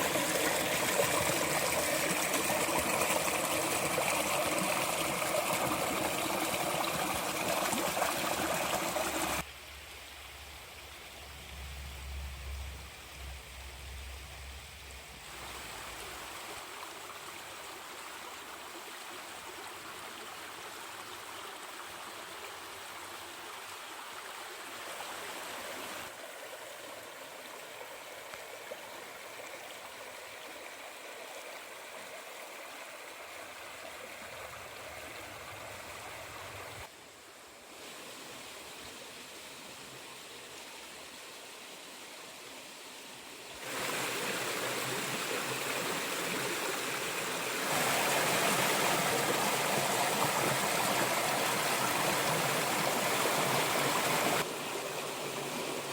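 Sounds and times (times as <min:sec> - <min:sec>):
small waterfall splashing: 0:00.0 - 0:09.5, 0:43.5 - 0:55.9.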